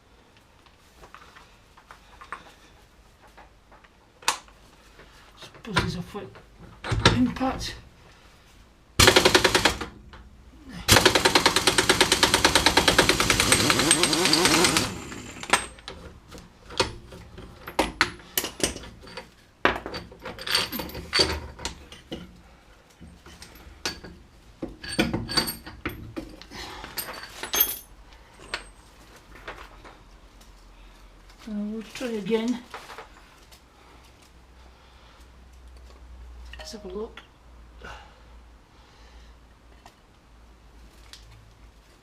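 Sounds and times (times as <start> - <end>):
impact wrench hammering: 9.0 - 10.0, 10.9 - 15.7.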